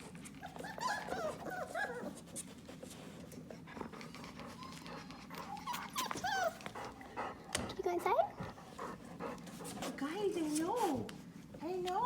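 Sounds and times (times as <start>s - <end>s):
puppies squeaking and whimpering: 0.3s - 2.3s, 4.5s - 6.8s.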